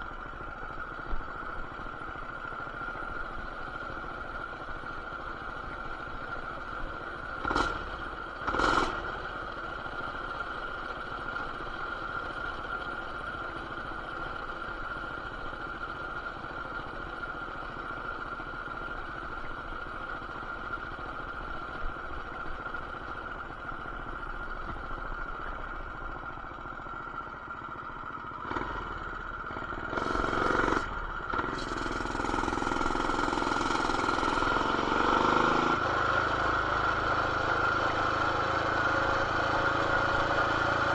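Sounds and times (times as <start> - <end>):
small engine running and revving: 5.0 - 12.9, 28.3 - 40.9.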